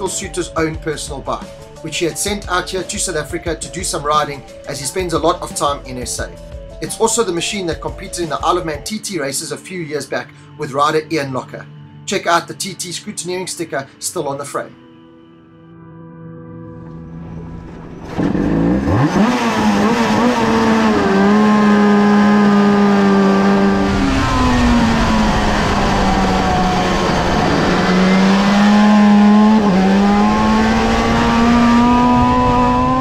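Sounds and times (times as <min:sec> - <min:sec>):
motorcycle engine on track: 0:17.2 - 0:33.0.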